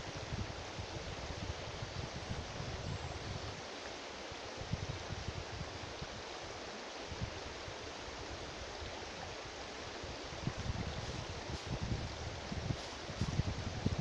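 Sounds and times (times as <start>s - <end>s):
wind buffeting microphone: 10.3s - 14.0s.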